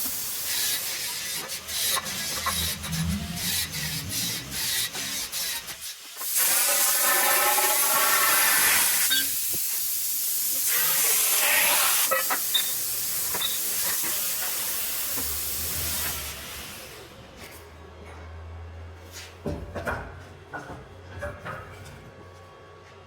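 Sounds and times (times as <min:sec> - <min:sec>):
plasma torch cutting hiss: 0:00.0 - 0:17.0
wavering whine: 0:02.0 - 0:04.6.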